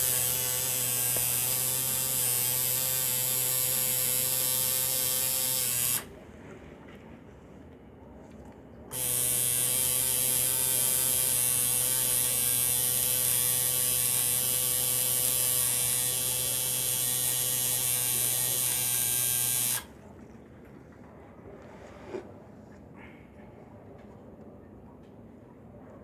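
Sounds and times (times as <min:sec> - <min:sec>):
tattoo machine buzzing: 0:00.0 - 0:06.1, 0:08.9 - 0:19.9.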